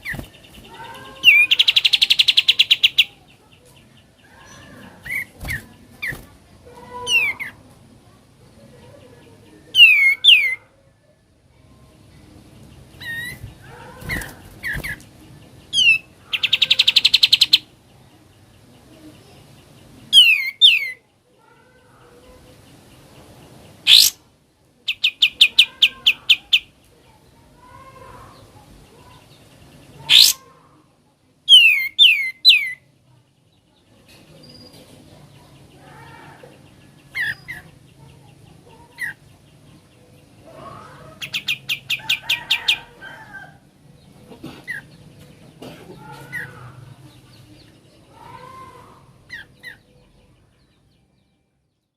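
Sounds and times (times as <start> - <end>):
songbird whistles and trills: 23.9 - 24.2.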